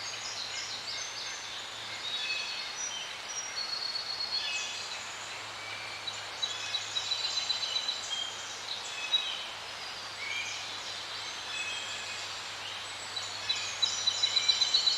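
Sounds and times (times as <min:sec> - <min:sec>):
soft steady hiss: 0:00.0 - 0:14.9.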